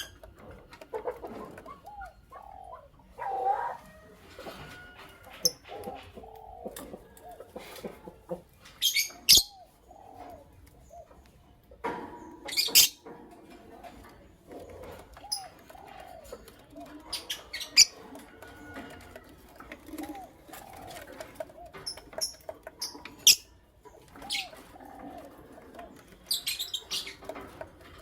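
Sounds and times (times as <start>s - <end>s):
lovebirds chirping softly: 4.8s - 13.0s, 13.9s - 28.0s.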